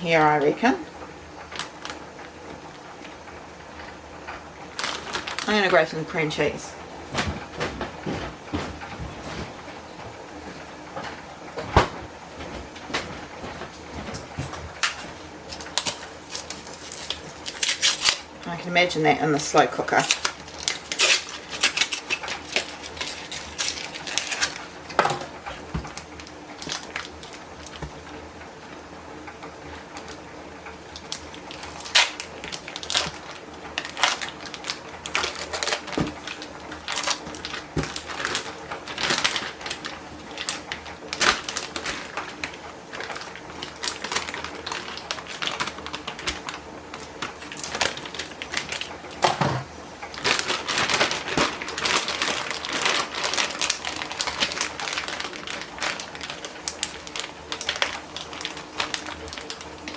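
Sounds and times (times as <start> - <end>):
utensils clicking and tapping: 19.5 - 26.0.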